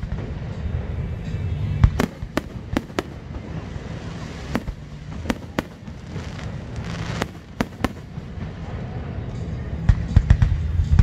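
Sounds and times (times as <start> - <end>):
background rumble: 0.0 - 11.0
fireworks bangs: 1.8 - 9.2.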